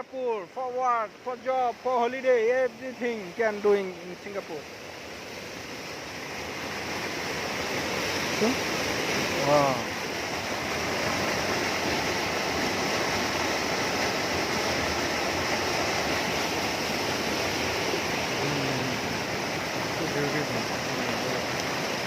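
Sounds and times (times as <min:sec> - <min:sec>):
heavy rain pouring: 0:05.7 - 0:22.0.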